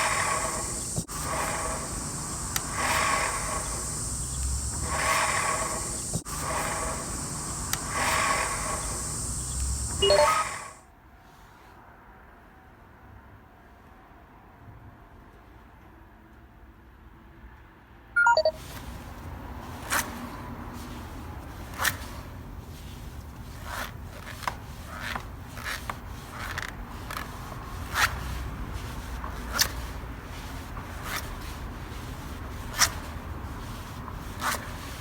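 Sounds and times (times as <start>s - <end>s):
scooter wheel rumbling: 0.0s - 10.7s.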